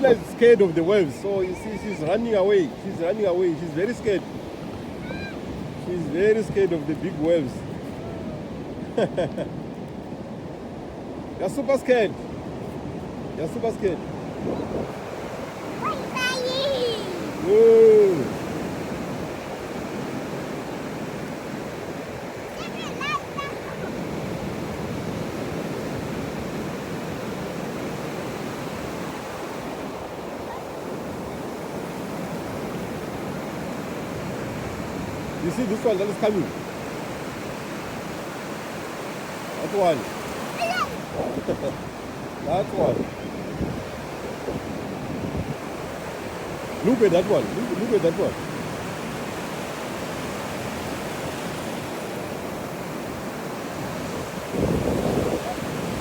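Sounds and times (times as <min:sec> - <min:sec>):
ocean waves breaking on beach: 0:00.0 - 0:56.0.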